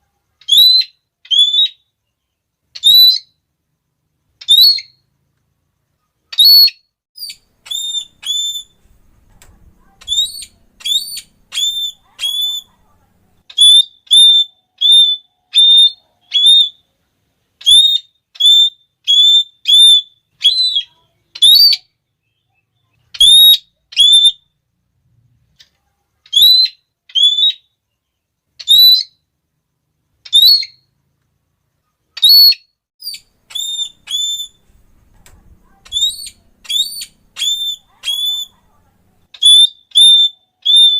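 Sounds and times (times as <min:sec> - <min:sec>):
parrot shrill calls: 0:00.4 - 0:01.8, 0:02.8 - 0:03.4, 0:04.4 - 0:05.0, 0:06.3 - 0:08.8, 0:10.0 - 0:12.8, 0:13.5 - 0:16.8, 0:17.6 - 0:21.9, 0:23.1 - 0:24.5, 0:26.3 - 0:27.7, 0:28.6 - 0:29.2, 0:30.3 - 0:30.9, 0:32.2 - 0:34.7, 0:35.7 - 0:38.6, 0:39.3 - 0:40.9.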